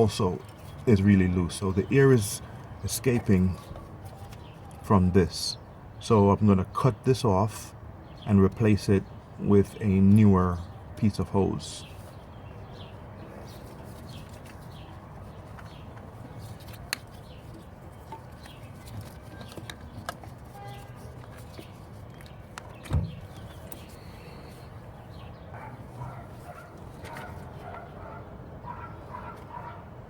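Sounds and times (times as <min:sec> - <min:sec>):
bird calls: 0:10.5 - 0:29.8.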